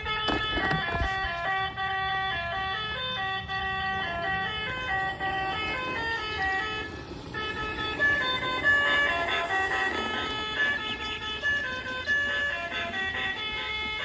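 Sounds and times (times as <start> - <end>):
electronic melody with horn-like notes: 0.0 - 14.0.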